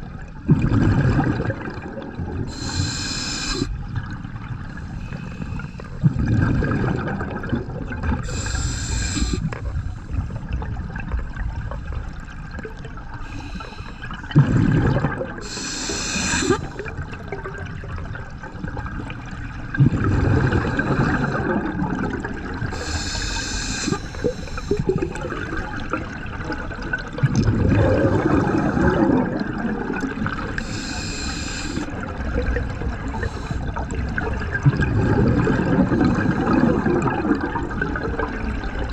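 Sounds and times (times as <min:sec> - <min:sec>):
bubbles rushing on exhale: 0:00.0 - 0:04.9, 0:06.0 - 0:13.2, 0:14.1 - 0:38.9
regulator inhale hiss: 0:02.5 - 0:03.7, 0:08.2 - 0:10.2, 0:13.2 - 0:14.2, 0:15.4 - 0:16.9, 0:20.4 - 0:21.5, 0:22.7 - 0:25.2, 0:30.6 - 0:31.9, 0:33.0 - 0:33.9.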